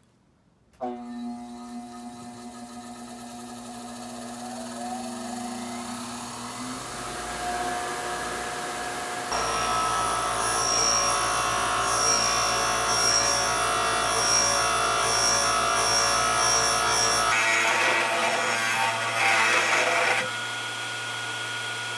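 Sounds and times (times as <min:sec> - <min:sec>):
power tool running: 0:00.8 - 0:21.9.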